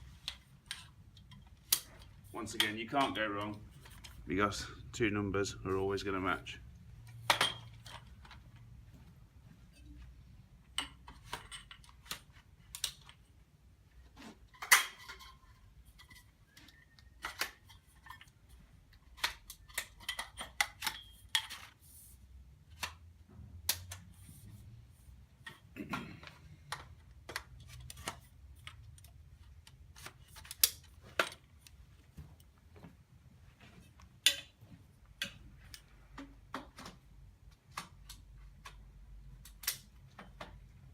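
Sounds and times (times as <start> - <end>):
frame tubes clicking together: 0.1 - 4.2, 34.0 - 40.7.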